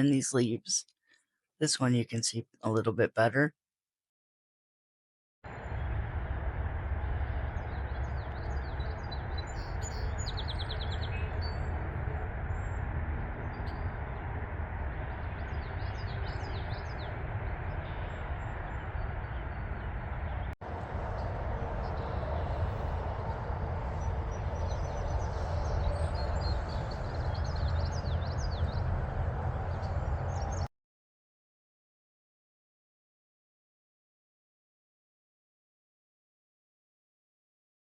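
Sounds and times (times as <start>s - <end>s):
low rumble: 5.5s - 30.7s
small birds chirping: 7.2s - 12.8s, 13.4s - 30.7s.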